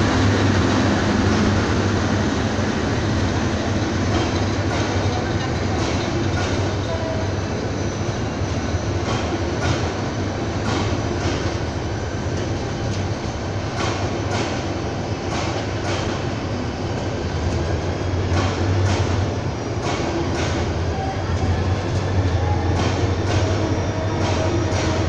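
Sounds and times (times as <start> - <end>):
train coaches rumbling past: 0.0 - 25.0.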